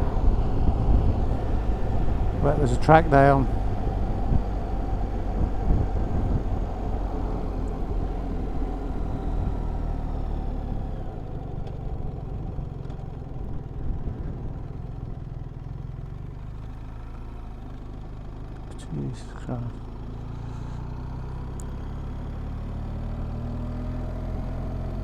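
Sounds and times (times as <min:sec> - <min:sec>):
wind rush on microphone: 0:00.0 - 0:09.8
motorcycle engine running: 0:00.0 - 0:25.0.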